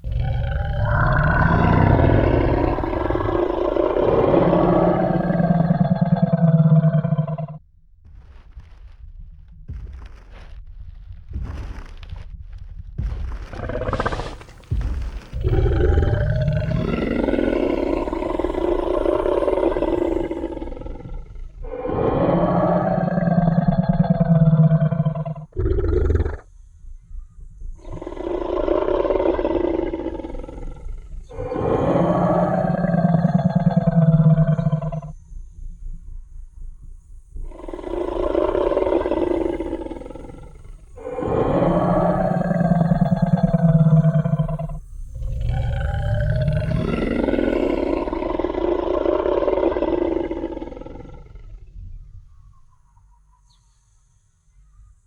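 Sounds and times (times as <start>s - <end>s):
deep growling dinosaur roar: 0.0s - 7.6s, 13.2s - 26.4s, 27.8s - 35.2s, 37.5s - 52.5s.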